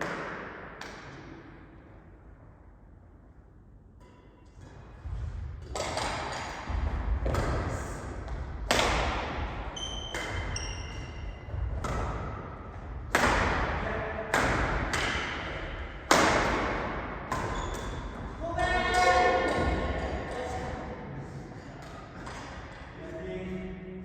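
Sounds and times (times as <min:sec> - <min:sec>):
rackets hitting shuttlecock: 0:00.0 - 0:01.5, 0:04.0 - 0:20.8
shoes squeaking on court floor: 0:09.7 - 0:12.0, 0:17.3 - 0:18.2.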